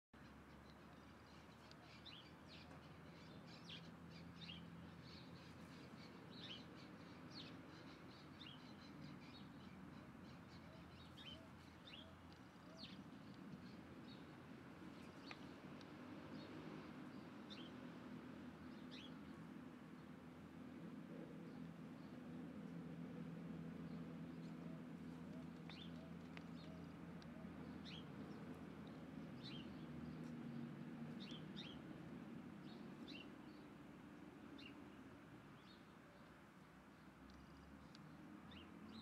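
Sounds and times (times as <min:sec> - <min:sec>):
low steady background hum: 0:00.2 - 0:39.0.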